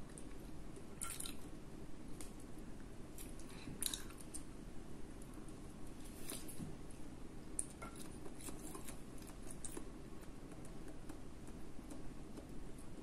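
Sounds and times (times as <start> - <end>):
faint low hum: 0.0 - 13.0
person chewing: 7.6 - 12.0.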